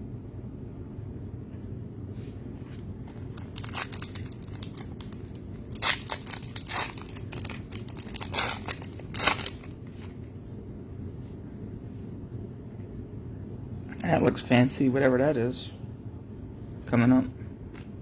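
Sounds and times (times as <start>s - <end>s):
low background hum: 0.0s - 18.0s
plastic wrapper crinkling and tearing: 2.6s - 10.2s.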